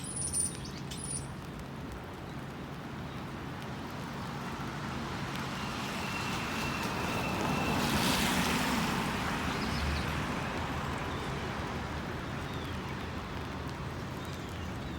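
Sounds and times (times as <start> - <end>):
street noise: 0.0 - 2.5.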